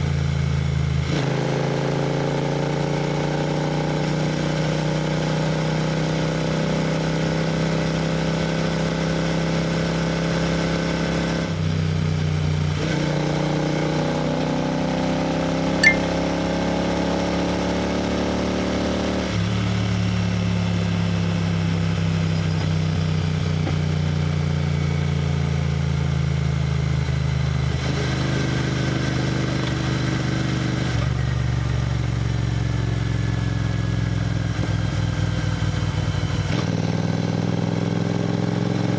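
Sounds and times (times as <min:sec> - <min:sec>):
brief sharp sound: 0:15.8 - 0:16.4.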